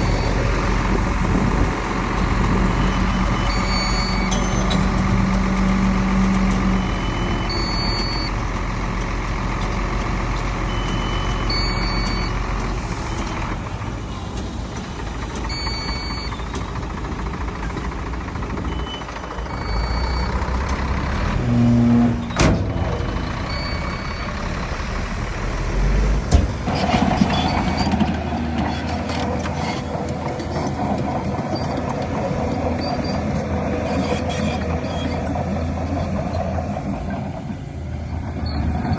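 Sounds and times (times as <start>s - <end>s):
heavy diesel machinery running: 0.0s - 38.9s
back-up alarm beeps: 2.7s - 4.8s.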